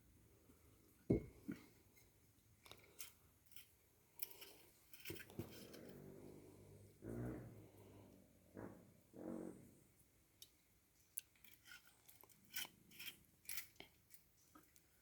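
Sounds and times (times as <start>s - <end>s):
utensils clicking and scraping: 2.7s - 6.0s.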